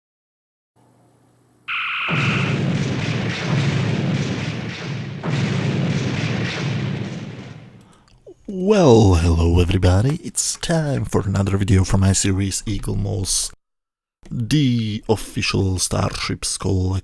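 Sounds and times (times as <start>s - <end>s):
electronic two-tone beep: 1.7s - 2.6s
deep rumbling booms: 2.1s - 7.9s.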